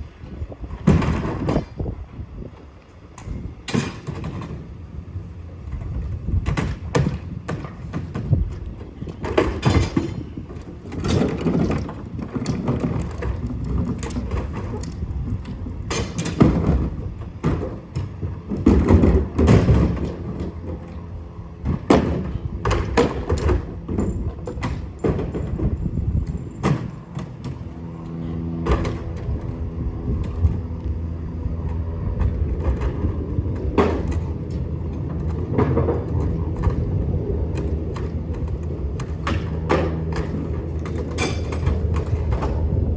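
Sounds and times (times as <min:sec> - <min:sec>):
clunks and thumps: 0:00.3 - 0:02.6, 0:03.2 - 0:04.8, 0:05.6 - 0:30.7, 0:31.6 - 0:42.9
low rumble: 0:27.6 - 0:42.9.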